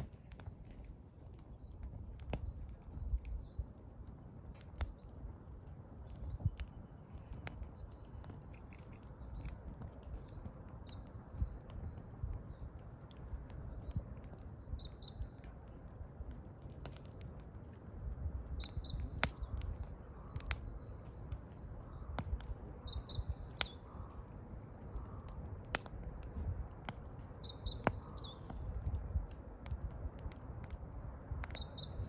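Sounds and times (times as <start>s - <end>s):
wood fire crackling: 0.0s - 32.0s
small bird chirping: 18.4s - 24.2s, 27.2s - 28.7s, 31.4s - 32.0s.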